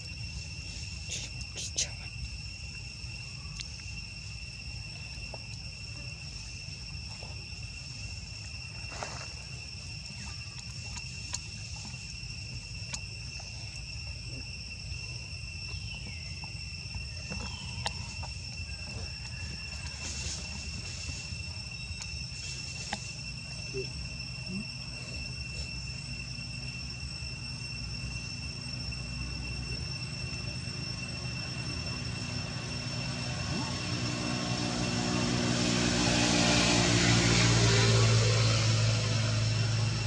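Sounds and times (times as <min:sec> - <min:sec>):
insects trilling: 0:00.0 - 0:40.0.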